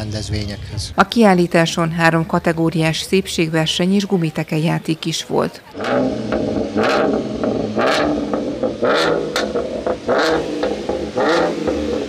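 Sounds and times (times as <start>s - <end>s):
car engine revving: 5.7s - 12.0s.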